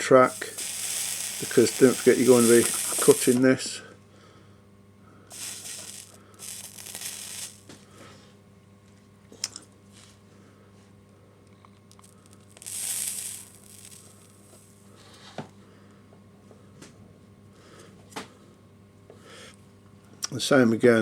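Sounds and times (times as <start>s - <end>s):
soldering iron hissing and sizzling: 0.0s - 3.5s, 5.3s - 7.8s, 12.5s - 14.8s.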